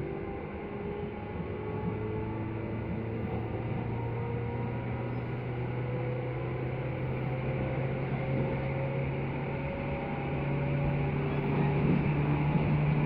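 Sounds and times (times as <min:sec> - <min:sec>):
electric train running: 0:07.0 - 0:13.0.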